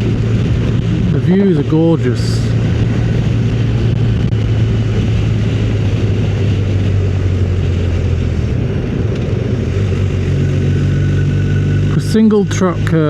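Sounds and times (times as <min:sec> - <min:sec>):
motorcycle engine running: 0:00.0 - 0:13.0
wind rush on microphone: 0:00.0 - 0:13.0.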